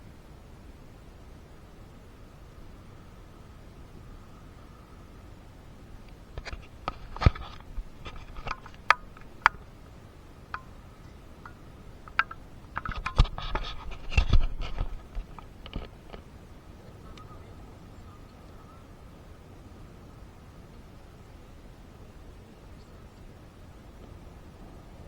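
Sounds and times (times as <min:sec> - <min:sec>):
irregular clicks and taps: 0:06.1 - 0:09.8, 0:10.5 - 0:16.2
scraping: 0:06.4 - 0:16.2.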